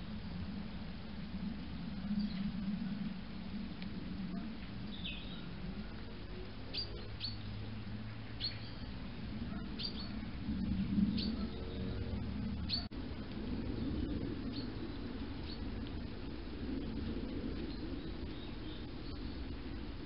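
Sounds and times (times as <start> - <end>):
low background rumble: 0.0 - 20.0
small bird chirping: 4.3 - 5.6, 6.6 - 7.6, 8.3 - 10.3, 11.0 - 12.9, 13.8 - 16.1, 17.5 - 19.6.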